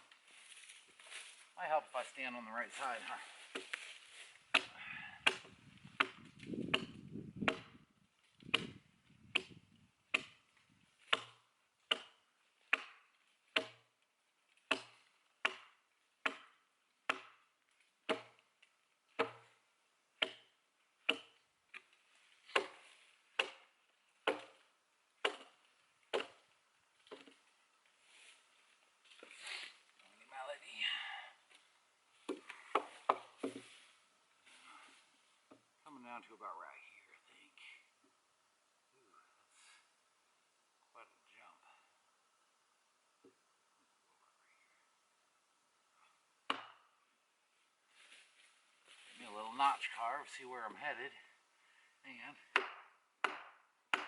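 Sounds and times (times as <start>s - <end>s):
axe chopping into log: 4.5s - 7.8s, 8.4s - 10.4s, 11.1s - 13.8s, 14.7s - 17.4s, 18.1s - 18.4s, 19.2s - 19.5s, 20.2s - 21.4s, 22.5s - 22.8s, 23.4s - 24.6s, 25.2s - 26.4s, 32.3s - 33.7s, 46.5s - 46.8s, 52.5s - 54.0s.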